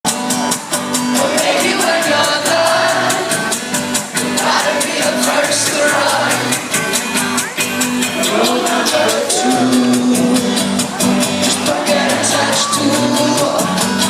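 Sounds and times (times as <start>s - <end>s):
live pop concert music: 0.1s - 14.0s
person singing melody: 4.3s - 14.0s.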